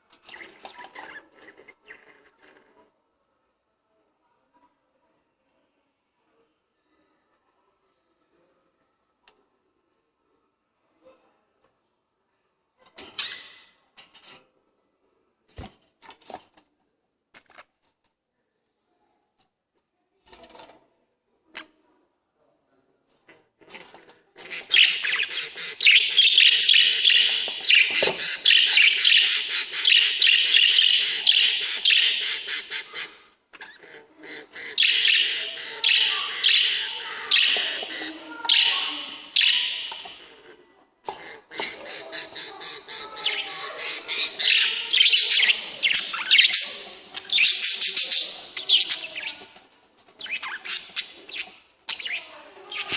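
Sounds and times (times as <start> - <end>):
lovebirds chattering shrilly: 24.5 - 33.2, 34.4 - 40.3, 41.6 - 49.4.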